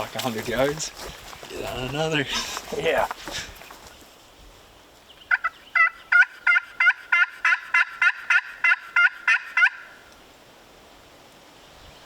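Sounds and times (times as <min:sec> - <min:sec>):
turkey call yelping: 0:05.3 - 0:10.1.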